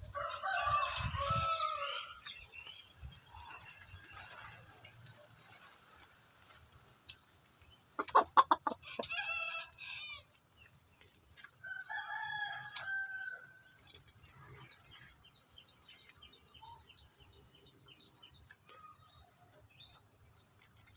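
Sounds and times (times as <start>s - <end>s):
rooster crowing: 0.1s - 2.2s, 11.7s - 13.4s.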